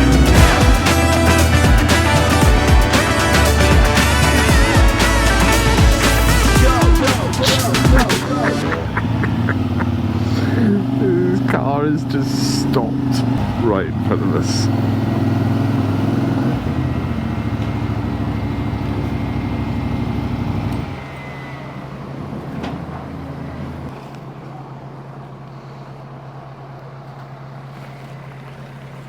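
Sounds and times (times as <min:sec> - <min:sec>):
motorcycle engine running: 0:00.0 - 0:20.6.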